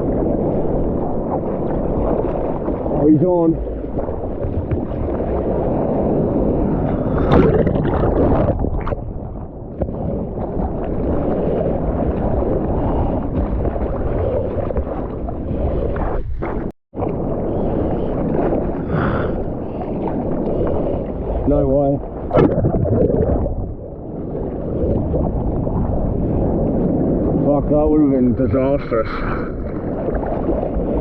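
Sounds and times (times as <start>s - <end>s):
water splash: 0.0s - 17.3s, 21.8s - 27.4s
surf rushing: 0.0s - 31.0s
wind noise on microphone: 0.0s - 31.0s.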